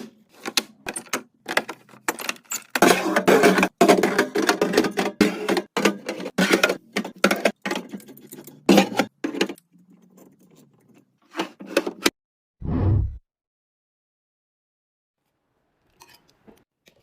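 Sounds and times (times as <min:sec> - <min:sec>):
containers clattering: 0:00.9 - 0:09.6.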